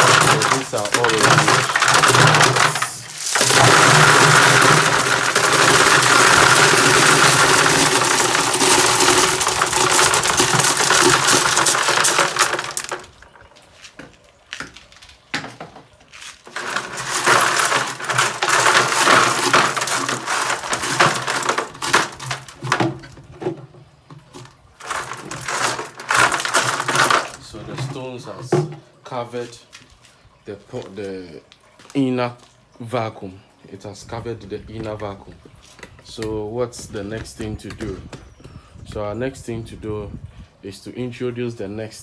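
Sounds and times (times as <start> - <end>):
stones pouring and clattering: 0.0 - 14.0, 14.7 - 28.2.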